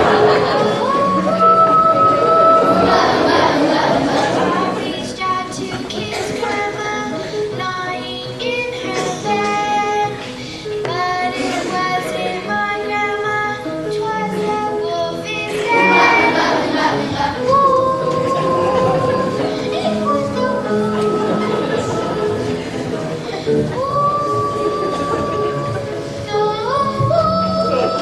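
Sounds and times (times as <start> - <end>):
children singing: 0.0 - 28.0
musical accompaniment: 0.0 - 28.0.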